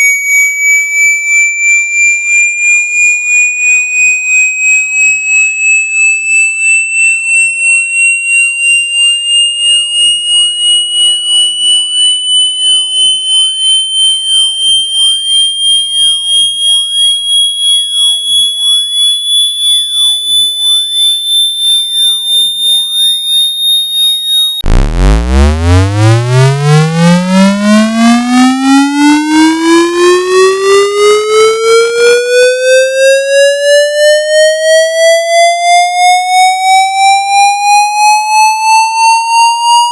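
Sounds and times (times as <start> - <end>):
high pulsing tone gliding upward: 24.2 - 34.1
buzzy low tone sweeping upward: 24.5 - 32.5.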